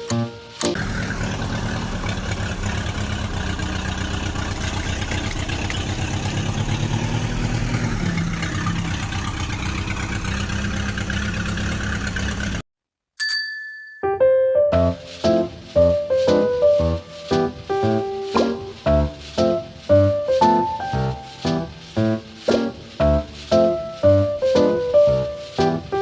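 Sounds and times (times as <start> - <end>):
small tractor engine running: 0.0 - 12.6.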